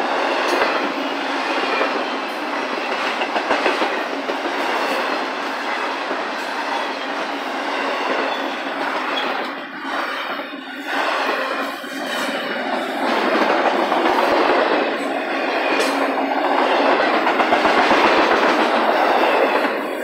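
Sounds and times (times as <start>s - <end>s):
freight train wheels on rails: 0.0s - 20.0s
sharp rail clicks: 15.7s - 19.8s.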